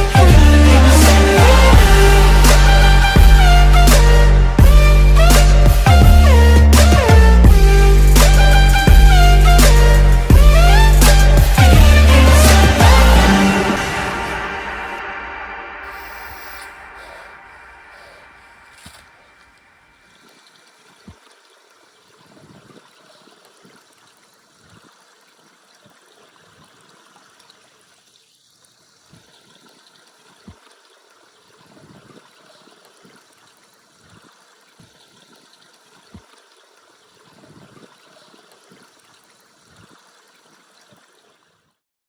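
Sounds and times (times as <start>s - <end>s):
running water trickling: 15.8s - 41.8s.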